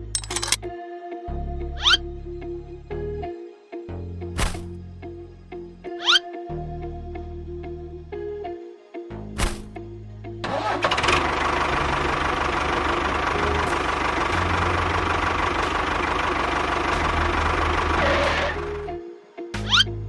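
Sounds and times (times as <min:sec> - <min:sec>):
motor running with whine: 0:13.0 - 0:18.9.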